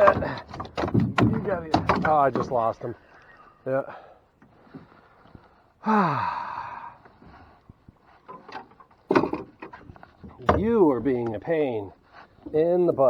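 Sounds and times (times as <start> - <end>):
man sighing: 5.8 - 7.2.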